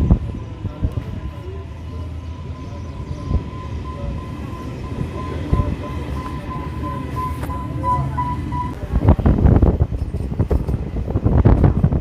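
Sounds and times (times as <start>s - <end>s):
high-pitched whine: 0.0s - 9.2s
train rumble: 0.0s - 12.0s.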